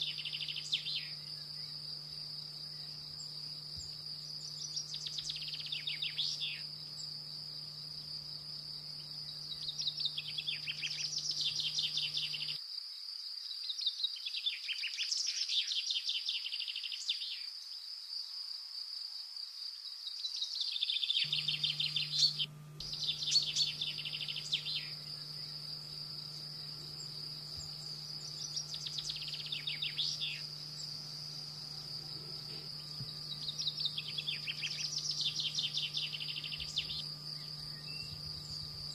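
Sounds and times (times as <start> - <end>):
high-pitched whine: 0.0 - 12.6, 21.2 - 38.9
canaries singing trills: 21.2 - 25.6, 26.6 - 38.9.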